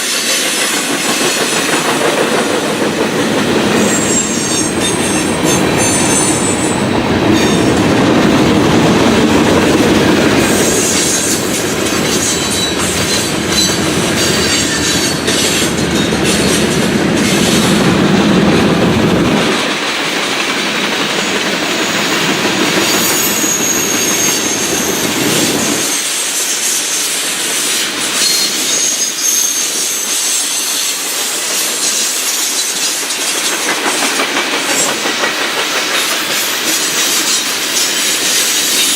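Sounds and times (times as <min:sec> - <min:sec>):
wheels clicking over rail joints: 0:00.2 - 0:25.8, 0:30.9 - 0:38.9
high wheel squeal: 0:03.6 - 0:07.8, 0:10.4 - 0:17.8, 0:22.7 - 0:33.5
heavy low rumble: 0:15.8 - 0:19.6.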